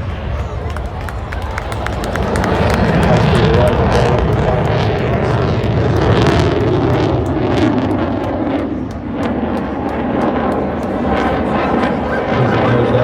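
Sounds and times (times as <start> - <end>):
jet engine roar with cracks: 0.0 - 13.0.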